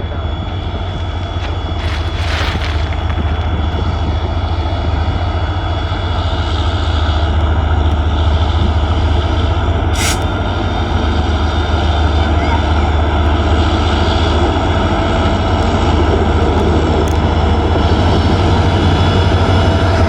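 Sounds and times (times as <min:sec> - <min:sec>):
train rumbling: 0:00.0 - 0:20.0
short hiss: 0:10.0 - 0:10.4.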